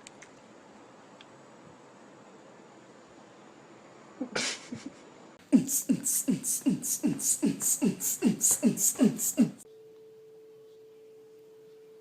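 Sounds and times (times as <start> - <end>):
faint steady hum: 0.0 - 12.0
fast rhythmic thumping beat: 5.5 - 9.6.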